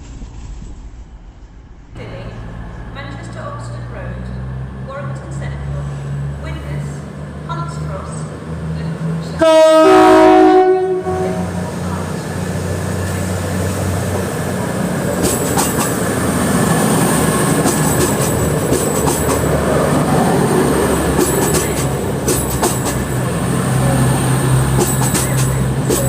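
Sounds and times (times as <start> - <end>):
train hum: 0.0 - 26.0
wheels clicking over rail joints: 14.8 - 23.5, 24.6 - 26.0.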